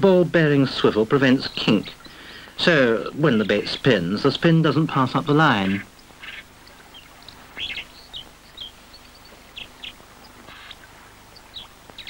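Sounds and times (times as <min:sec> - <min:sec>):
faint background hiss: 0:00.0 - 0:12.0
small birds chirping: 0:00.5 - 0:12.0.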